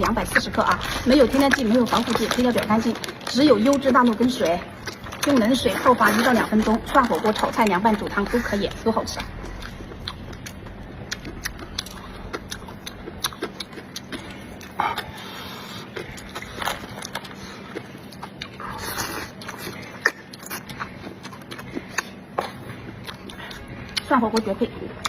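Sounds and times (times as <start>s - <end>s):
person chewing food: 0.0s - 24.1s.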